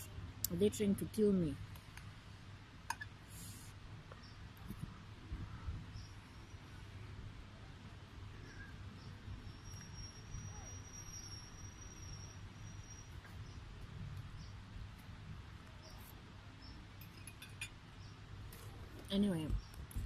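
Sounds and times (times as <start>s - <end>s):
low rumble and hiss: 0.0s - 20.0s
high insect tone: 9.5s - 13.6s.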